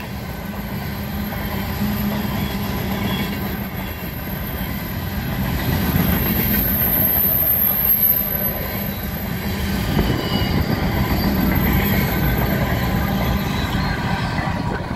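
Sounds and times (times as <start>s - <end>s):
high wheel squeals: 0.0s - 14.8s
train wheels rumbling on rails: 0.0s - 14.9s.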